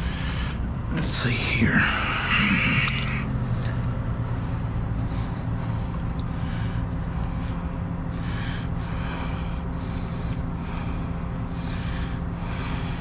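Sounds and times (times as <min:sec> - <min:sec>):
truck diesel engine idling: 0:00.0 - 0:13.0.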